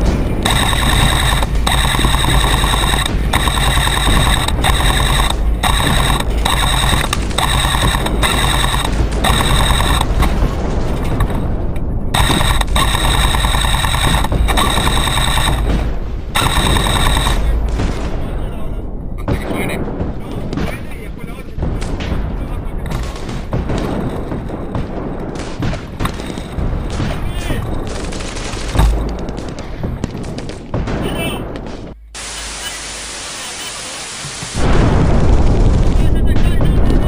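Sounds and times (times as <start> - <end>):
airsoft gun firing bursts: 0.0 - 11.4, 12.2 - 17.6, 27.8 - 31.0.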